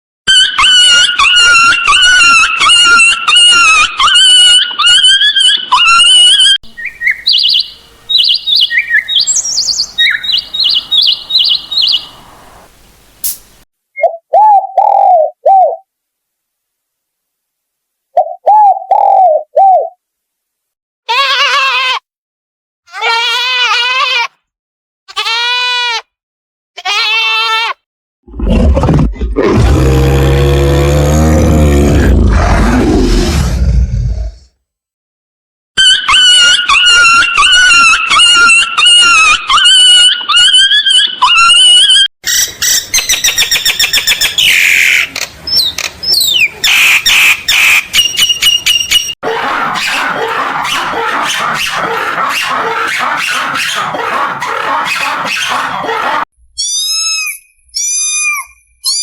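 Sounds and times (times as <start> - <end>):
animal whining squeals: 0.3 - 6.6, 35.8 - 42.1, 49.2 - 59.0
short chirping calls: 6.7 - 12.4
wavering bleats: 49.2 - 56.2
short arching animal calls: 49.2 - 58.4.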